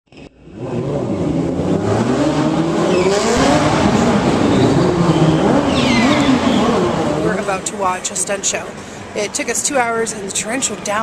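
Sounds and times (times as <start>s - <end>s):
motorcycle engine revving: 0.2s - 8.4s.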